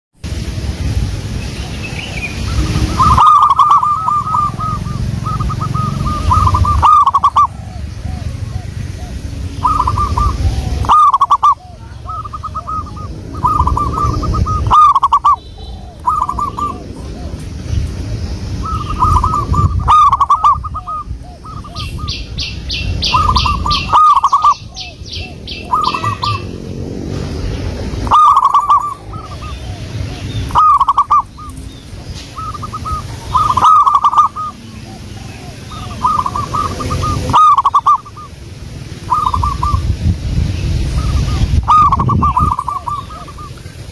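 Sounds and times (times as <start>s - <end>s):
dove cooing: 2.1s - 17.6s, 18.6s - 22.4s, 23.0s - 26.6s, 28.0s - 38.4s, 39.1s - 39.8s, 41.0s - 43.8s
bird rapid high notes: 2.3s - 7.5s.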